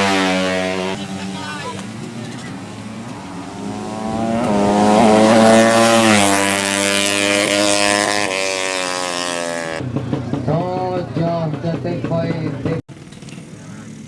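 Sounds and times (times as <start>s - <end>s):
motorcycle engine at high revs: 0.0s - 10.4s.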